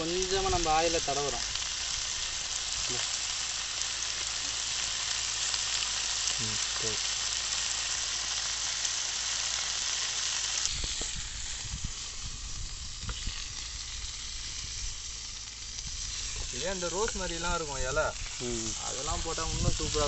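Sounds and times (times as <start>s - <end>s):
chicken sizzling in oil: 0.0s - 20.0s.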